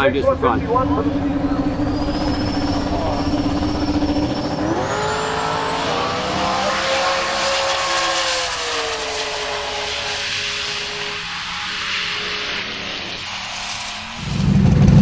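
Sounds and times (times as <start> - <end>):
race car engine accelerating: 0.0 - 15.0
thin high whine: 0.2 - 15.0.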